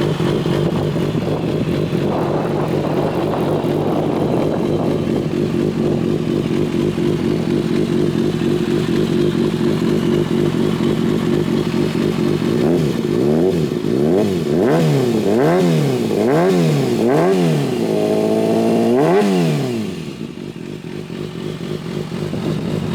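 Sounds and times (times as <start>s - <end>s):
motorcycle engine idling and revving: 0.0s - 22.9s.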